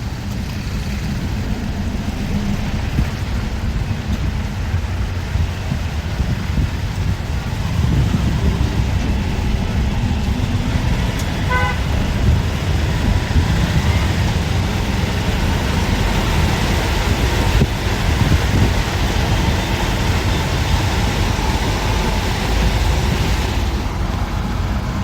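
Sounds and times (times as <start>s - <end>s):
bus engine and road rumble: 0.0s - 25.0s
vehicle horn toot: 11.4s - 12.1s.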